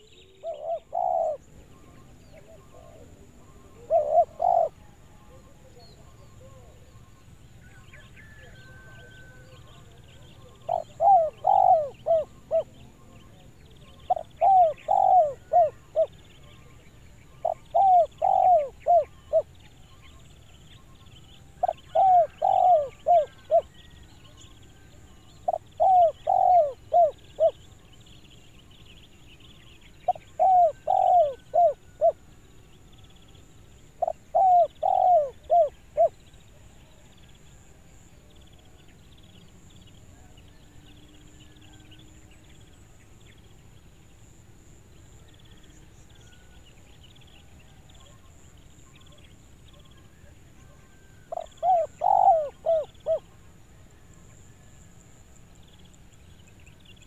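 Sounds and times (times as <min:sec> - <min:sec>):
dove cooing: 0:00.0 - 0:06.9, 0:08.3 - 0:19.6, 0:21.6 - 0:24.0, 0:24.7 - 0:27.6, 0:30.0 - 0:32.2, 0:33.9 - 0:37.0, 0:50.1 - 0:53.4.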